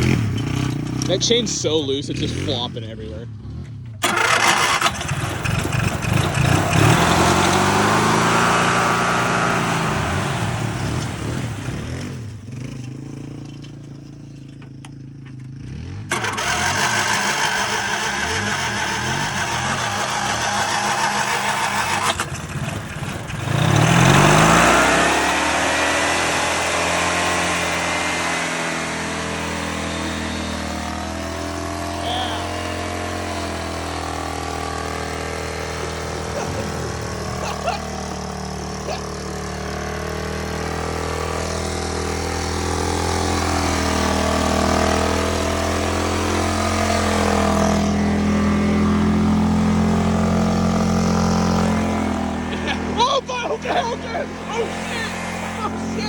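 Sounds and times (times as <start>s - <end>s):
lawnmower engine revving: 0.0s - 56.0s.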